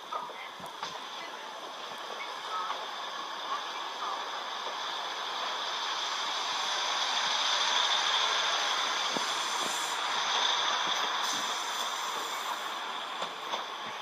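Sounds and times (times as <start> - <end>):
train rushing noise: 0.0 - 14.0.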